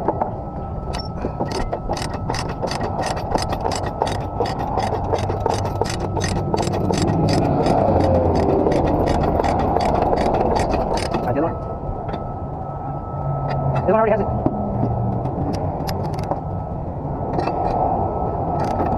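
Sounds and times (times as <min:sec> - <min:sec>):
rapid regular ticking: 0:00.9 - 0:11.4.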